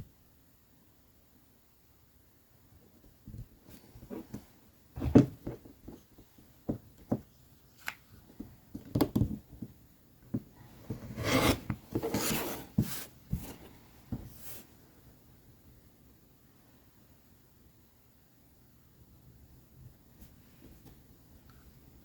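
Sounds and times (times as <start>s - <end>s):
rubbing and scraping: 10.7s - 13.7s.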